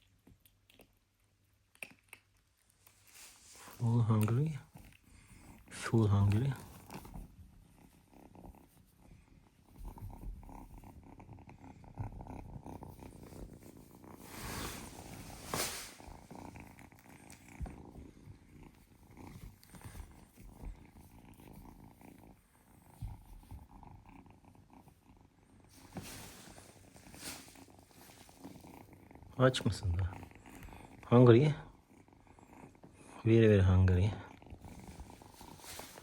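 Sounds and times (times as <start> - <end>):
kitten purring: 0.0 - 36.0
brief rustle: 14.2 - 16.1.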